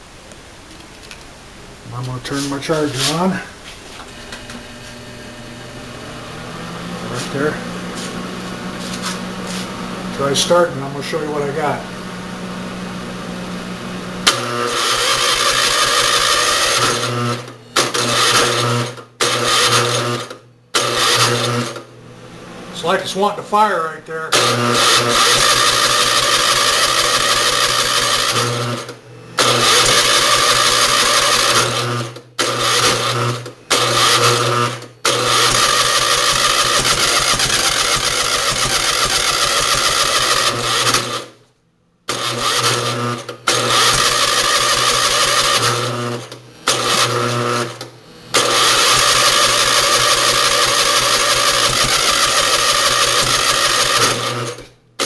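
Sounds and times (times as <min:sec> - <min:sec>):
engine cranking with starter: 0:06.4 - 0:11.8, 0:14.2 - 0:21.9, 0:24.3 - 0:41.4, 0:42.1 - 0:54.8.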